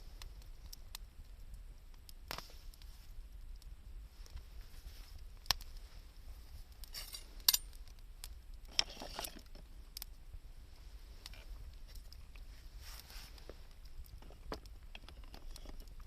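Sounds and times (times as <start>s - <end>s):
sharp fire pops: 0.0s - 6.0s
campfire crackling: 0.0s - 16.0s.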